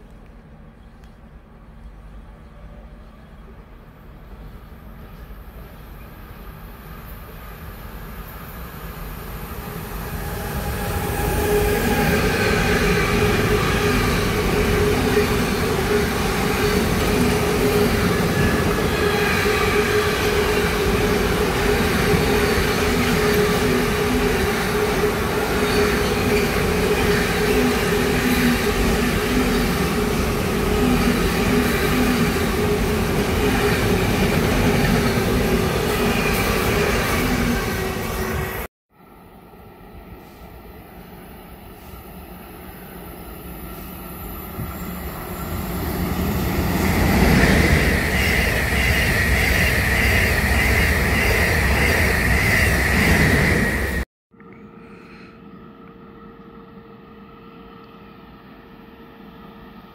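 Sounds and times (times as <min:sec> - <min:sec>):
train passing with whine and rumble: 0:00.0 - 0:54.0, 0:54.6 - 0:59.9.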